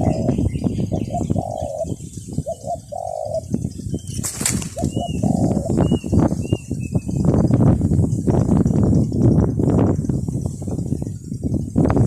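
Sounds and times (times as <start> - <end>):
doves cooing: 0.0 - 6.8
small bird high chirps: 0.0 - 7.6
crackling and rustling: 4.1 - 4.9.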